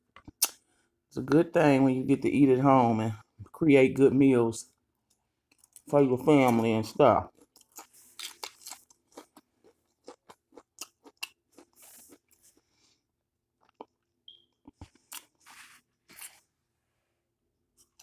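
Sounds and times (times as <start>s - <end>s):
crunchy chips chewing: 7.3s - 12.7s.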